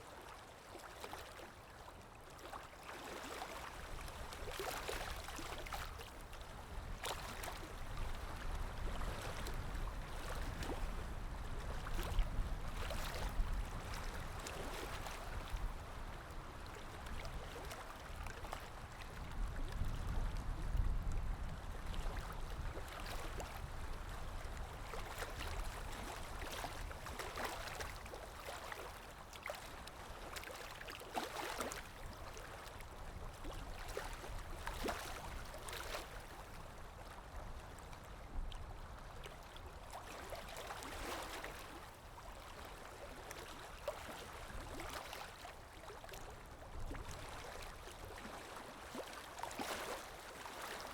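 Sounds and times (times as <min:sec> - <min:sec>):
river water lapping: 0:00.0 - 0:50.9
small splashes: 0:25.0 - 0:32.5.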